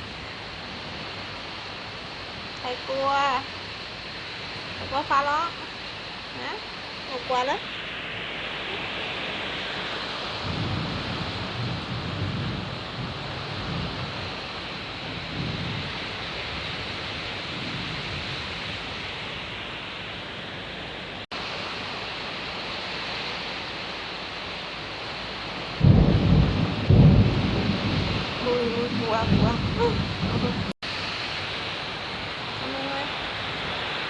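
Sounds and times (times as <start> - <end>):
heavy rain: 0.0 - 34.0
thunder rumbling: 0.0 - 34.0.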